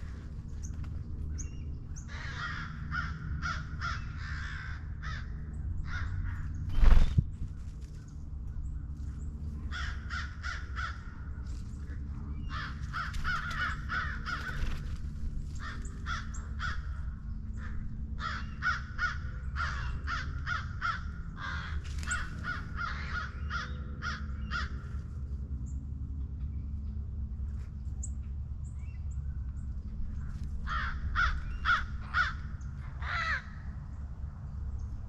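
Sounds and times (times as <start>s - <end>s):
steady low rumble: 0.0s - 35.0s
crows cawing: 2.0s - 6.5s, 9.6s - 11.3s, 12.5s - 14.9s, 15.6s - 24.9s, 30.6s - 33.8s.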